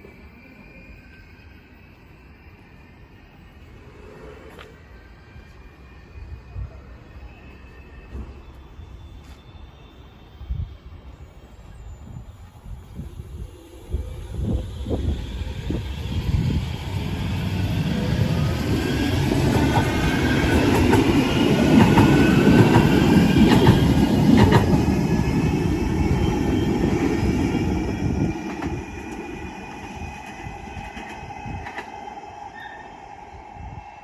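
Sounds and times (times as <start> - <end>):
high whining tones: 0.0 - 34.0
tram rumbling on rails: 0.0 - 34.0.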